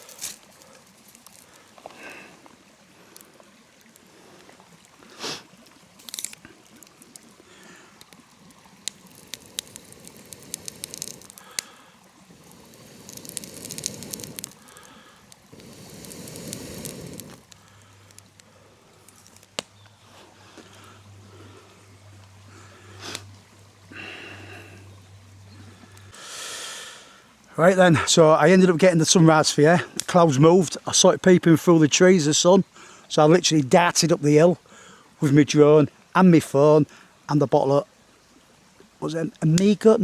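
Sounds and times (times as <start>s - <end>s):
sticks rustling: 0.0s - 2.1s, 6.0s - 8.2s, 8.8s - 19.7s
campfire crackling: 0.0s - 37.5s.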